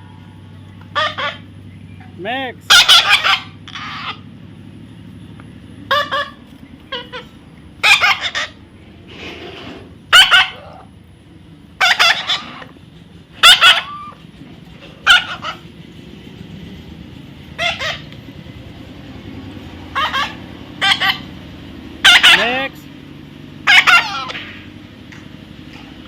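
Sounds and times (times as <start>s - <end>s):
parrot squawking: 0.9s - 1.5s, 2.7s - 4.3s, 5.8s - 8.6s, 10.1s - 10.9s, 11.7s - 15.7s, 17.5s - 18.2s, 19.8s - 21.4s, 22.0s - 22.9s, 23.6s - 24.5s.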